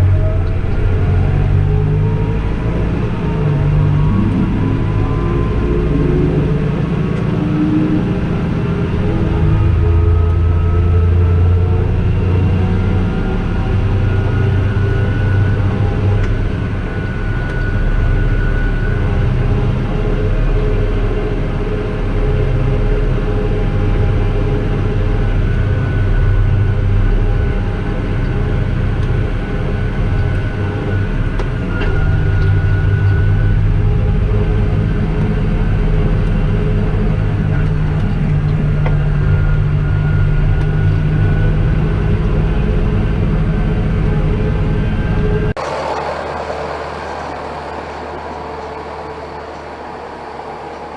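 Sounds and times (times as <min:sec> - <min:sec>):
diesel engine running: 0:45.6 - 0:50.9
thin high whine: 0:45.6 - 0:50.9.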